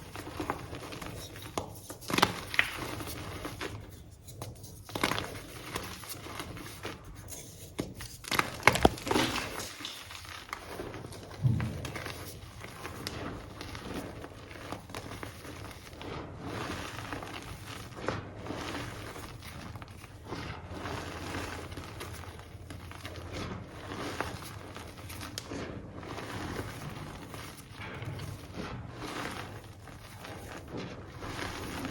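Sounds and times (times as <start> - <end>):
hands crumbling chalk: 0.0 - 31.9.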